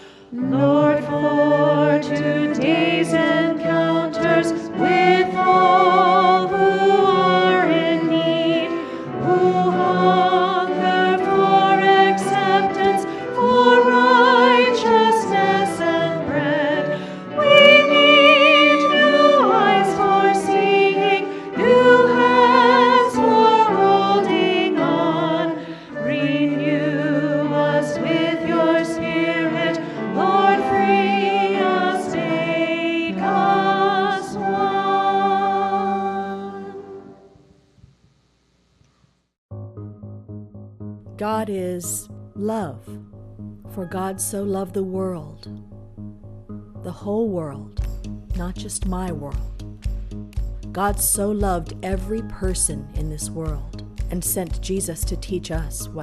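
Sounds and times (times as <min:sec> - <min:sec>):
singers breathing: 0:00.0 - 0:00.4, 0:16.9 - 0:17.3, 0:25.6 - 0:26.0
choir singing: 0:00.3 - 0:37.3.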